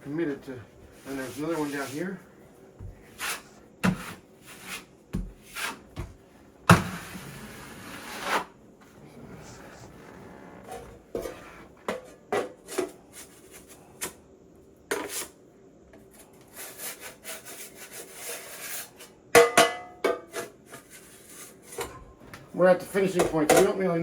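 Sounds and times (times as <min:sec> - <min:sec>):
trowel scraping plaster: 0:01.0 - 0:02.1, 0:03.1 - 0:05.9, 0:06.7 - 0:08.6, 0:16.5 - 0:19.0.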